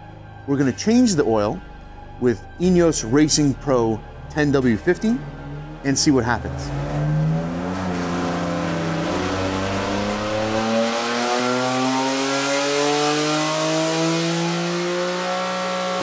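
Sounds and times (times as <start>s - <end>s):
car engine full-throttle pull: 6.4s - 16.0s.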